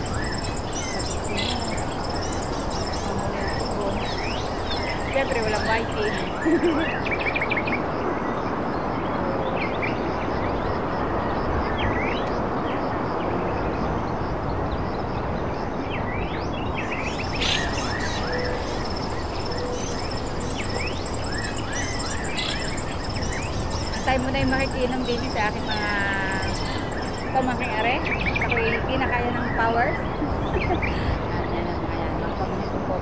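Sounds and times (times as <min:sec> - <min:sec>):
birds chirping: 0:00.0 - 0:07.8, 0:16.6 - 0:33.0
steady rushing noise: 0:00.0 - 0:09.3, 0:16.6 - 0:33.0
faint high-pitched whine: 0:00.0 - 0:33.0.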